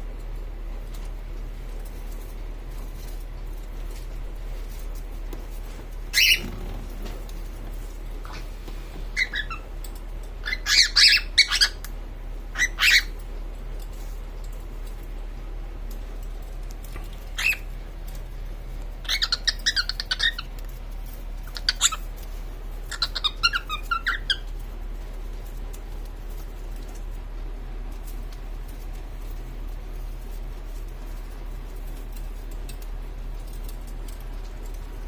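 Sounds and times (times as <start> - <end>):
cockatiel chirping and squawking: 6.1 - 6.7, 9.1 - 9.7, 10.4 - 11.8, 12.5 - 13.2, 17.3 - 17.7, 19.0 - 20.6, 21.4 - 22.2, 22.8 - 24.5.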